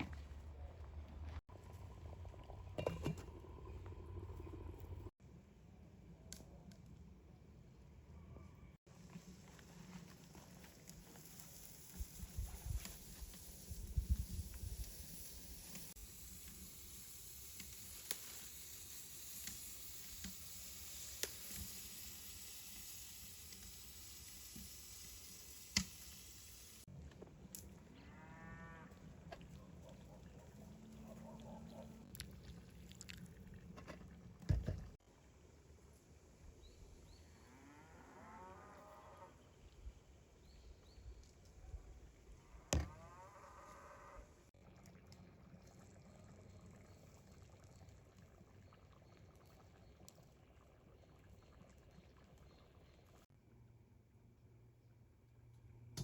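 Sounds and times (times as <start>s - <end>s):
steady hiss: 9.2s - 26.9s.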